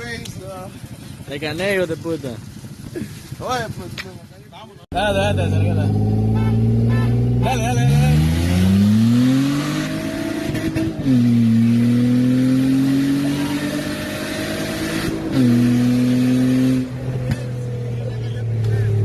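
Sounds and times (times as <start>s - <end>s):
car engine accelerating: 5.0s - 19.0s.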